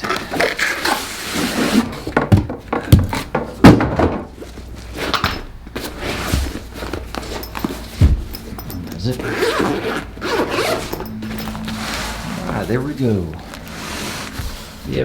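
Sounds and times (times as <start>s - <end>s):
knocks and thunks: 2.0s - 4.4s, 6.3s - 9.0s
packaging rustling: 4.4s - 15.0s.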